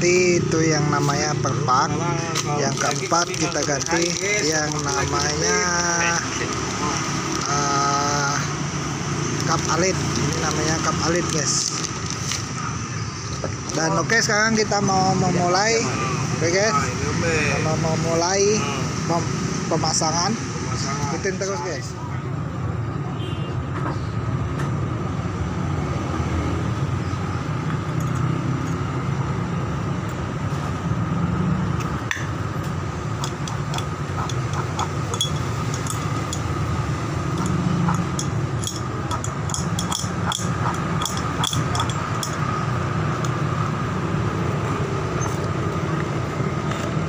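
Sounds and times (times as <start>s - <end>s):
metal parts and tools clinking: 2.3s - 5.8s, 33.0s - 43.4s.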